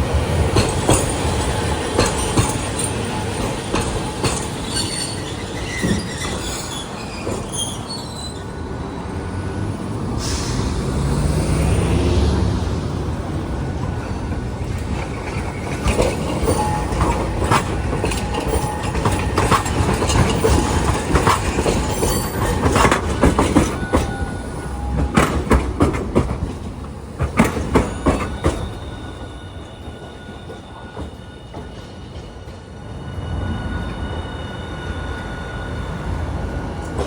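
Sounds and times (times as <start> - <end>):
wheel clacks over rail joints: 0.4 - 7.6, 13.7 - 32.6
wheel squeals: 0.6 - 9.1, 13.7 - 37.0.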